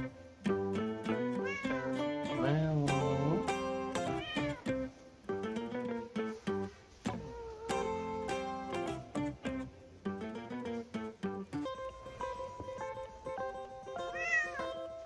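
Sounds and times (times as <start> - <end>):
plucked guitar music: 0.0 - 15.0
cat meowing: 1.4 - 2.1, 4.0 - 4.7, 7.1 - 8.0, 14.0 - 14.9.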